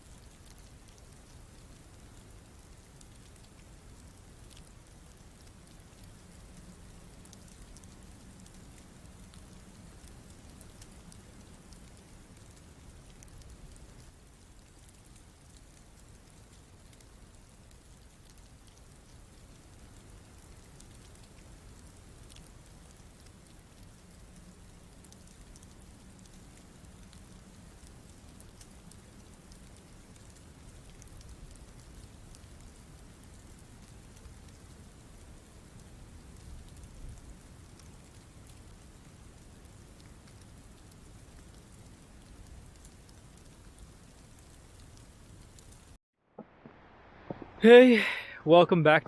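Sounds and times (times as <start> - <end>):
light ticks of snowflakes: 0.0 - 46.0
hiss of wet snow falling: 0.0 - 48.4
low rumble: 46.4 - 47.7.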